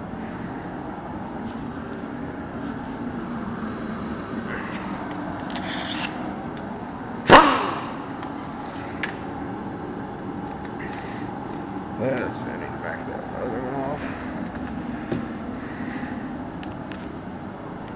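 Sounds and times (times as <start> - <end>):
steady background noise: 0.0 - 17.9
sharp metal clank: 7.3 - 8.0.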